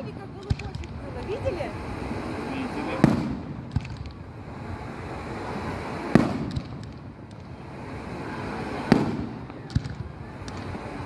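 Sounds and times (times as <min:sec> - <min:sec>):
firework pops and crackling: 0:00.0 - 0:01.7, 0:02.7 - 0:04.4, 0:05.4 - 0:11.0
firework shells booming: 0:00.2 - 0:01.6, 0:02.8 - 0:04.4, 0:05.4 - 0:07.6, 0:08.8 - 0:11.0.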